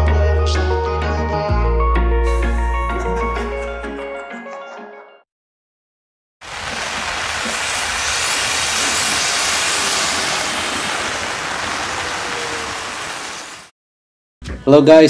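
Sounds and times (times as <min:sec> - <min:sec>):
rain falling on wet street: 0:06.4 - 0:13.7.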